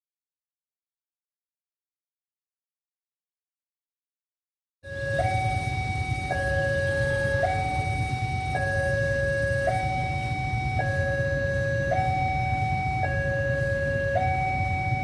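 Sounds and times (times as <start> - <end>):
level-crossing two-tone alarm: 4.8 - 15.0.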